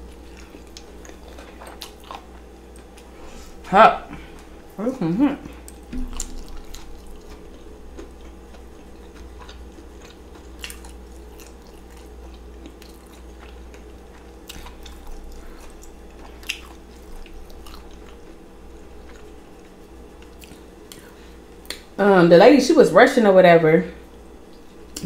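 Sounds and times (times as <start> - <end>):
chewing fried seafood: 0.0 - 3.2, 5.4 - 21.8
steady low hum: 0.0 - 25.0.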